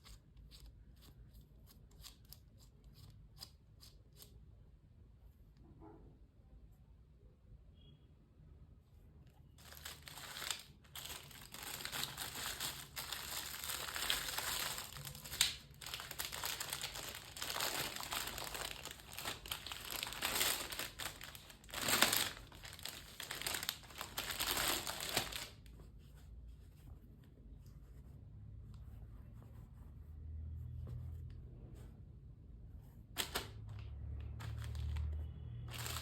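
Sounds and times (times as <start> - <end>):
crinkling and rustling: 9.6 - 27.4, 33.0 - 36.0.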